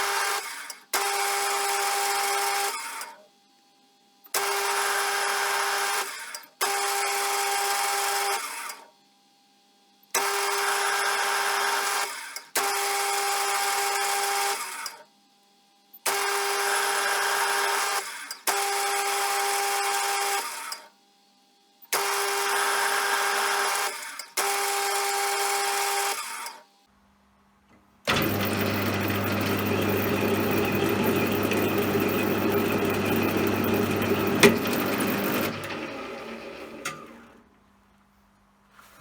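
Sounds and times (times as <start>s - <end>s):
machine humming: 28.1s - 37.4s
metal lathe whining: 28.1s - 37.4s.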